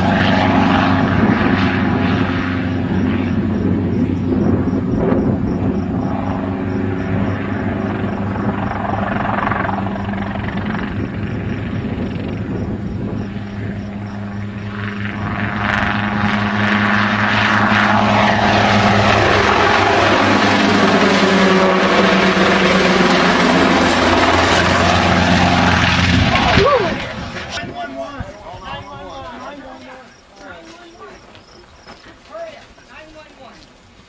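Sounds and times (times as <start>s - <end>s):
aircraft engine droning: 0.0s - 32.2s.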